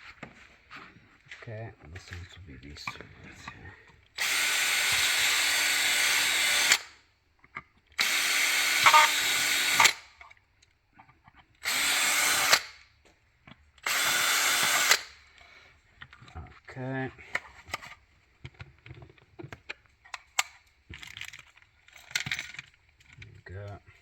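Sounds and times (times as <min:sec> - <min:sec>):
power drill drilling plastic: 0:04.2 - 0:07.0, 0:08.0 - 0:10.1, 0:11.6 - 0:12.8, 0:13.8 - 0:15.2.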